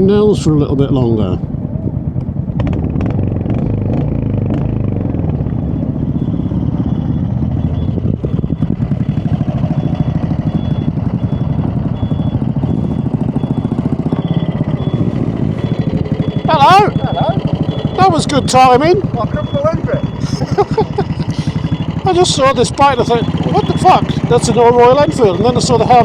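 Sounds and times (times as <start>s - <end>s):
motorcycle engine idling: 1.4s - 26.0s
faint high beep: 5.5s - 26.0s.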